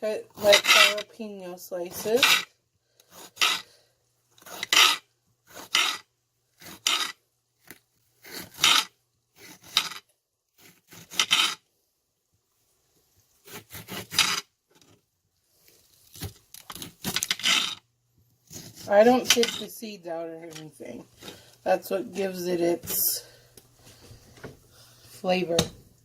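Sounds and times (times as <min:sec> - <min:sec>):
knife slicing on cutting board: 0:13.4 - 0:14.4.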